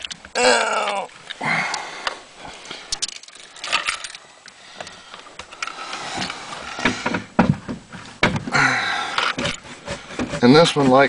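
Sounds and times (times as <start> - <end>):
knocks and thumps: 6.1 - 10.6.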